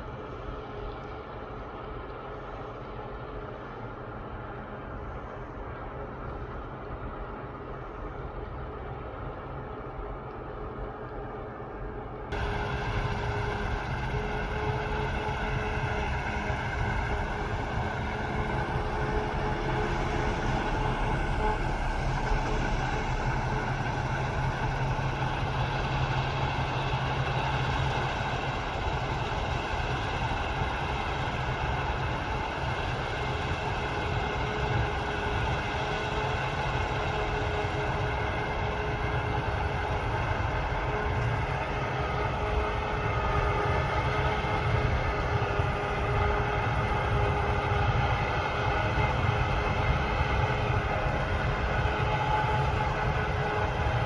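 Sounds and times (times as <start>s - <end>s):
harvest machinery engines droning: 0.0s - 54.0s
machinery whining tones: 12.3s - 54.0s.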